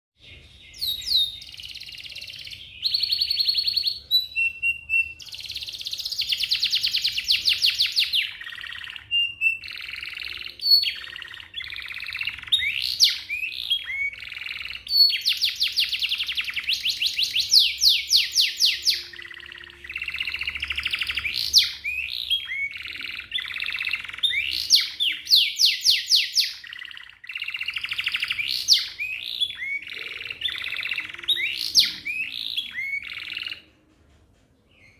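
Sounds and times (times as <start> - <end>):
canary singing trills: 0.2 - 33.7.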